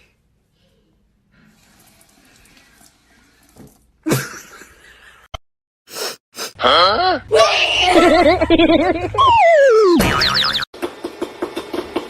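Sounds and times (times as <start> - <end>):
cartoon boing sound effect: 9.2 - 10.6.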